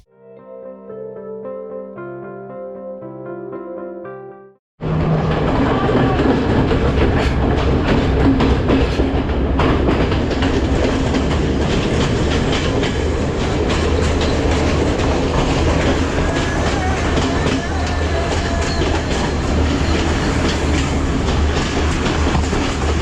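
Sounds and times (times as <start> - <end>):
train engine drone: 4.8 - 23.0
wheels clattering over rails: 4.8 - 23.0.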